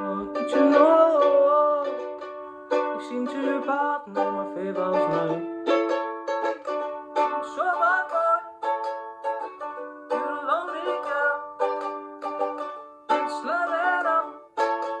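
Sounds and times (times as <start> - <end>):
person singing wordless notes: 0.0 - 5.6, 7.3 - 8.7, 10.1 - 11.7, 13.1 - 15.0
ukulele strumming chords: 0.0 - 15.0.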